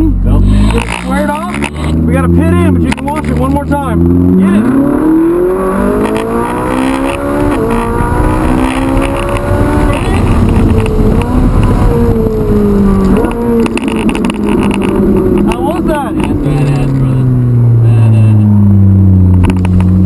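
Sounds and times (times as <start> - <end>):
sports car engine accelerating hard: 0.0 - 20.0.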